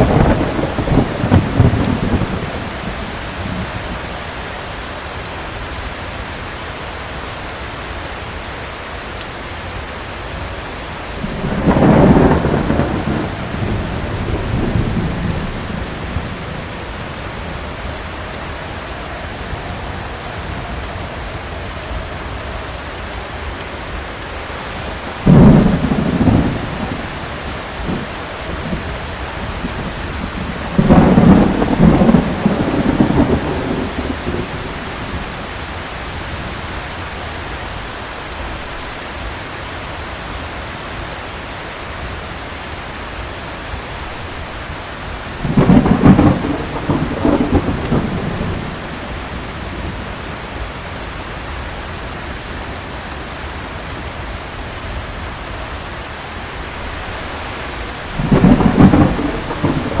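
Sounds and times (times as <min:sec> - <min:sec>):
thunder rolling: 0:00.0 - 0:04.2, 0:11.2 - 0:22.6, 0:24.5 - 0:37.5, 0:45.2 - 0:51.2, 0:56.8 - 1:00.0
heavy rain: 0:00.0 - 1:00.0.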